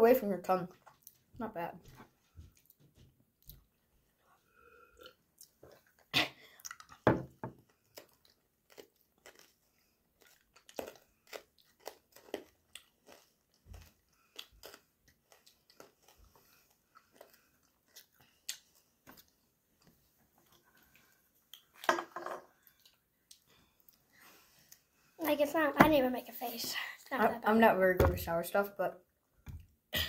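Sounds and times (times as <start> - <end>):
chewing hard candy: 4.9 - 19.4.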